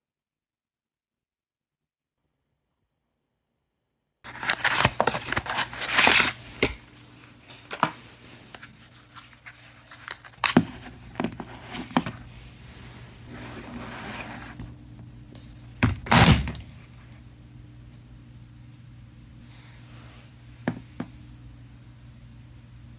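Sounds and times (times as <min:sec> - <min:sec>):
packaging tearing and crinkling: 0:04.3 - 0:07.0, 0:15.9 - 0:16.7.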